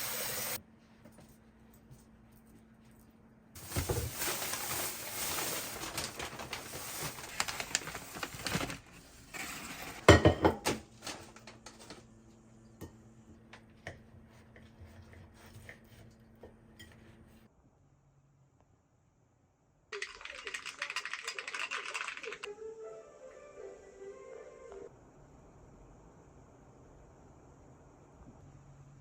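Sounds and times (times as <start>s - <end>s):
running water: 0.0s - 0.6s
dishes clattering: 9.9s - 10.8s
dishes and cutlery clinking: 10.0s - 10.8s.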